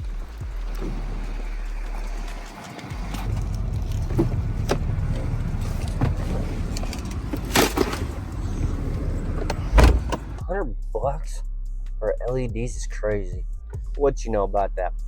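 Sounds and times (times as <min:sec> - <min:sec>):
truck engine and road rumble: 0:00.0 - 0:11.2.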